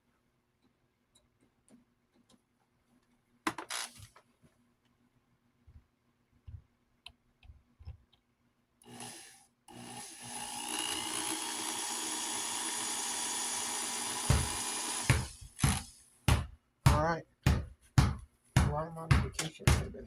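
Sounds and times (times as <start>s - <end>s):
small electric motor whining: 8.9s - 16.0s.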